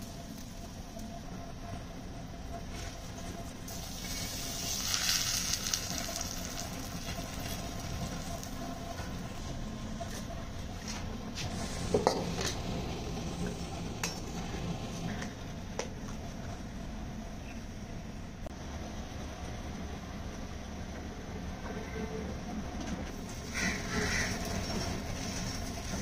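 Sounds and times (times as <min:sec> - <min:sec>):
flatbread sizzling on pan: 0:03.7 - 0:08.9, 0:23.1 - 0:26.0.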